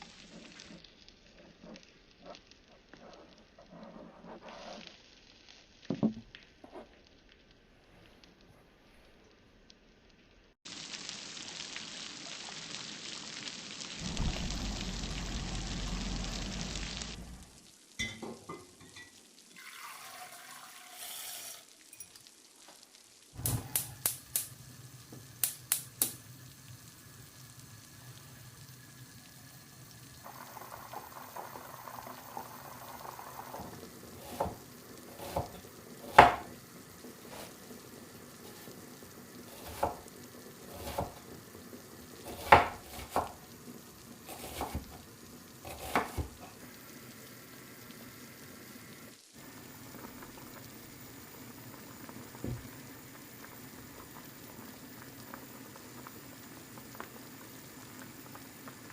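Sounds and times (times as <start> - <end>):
soft frying sizzle: 0.0 - 58.9
running water: 10.7 - 58.9
utensils and cookware clinking: 18.0 - 22.3.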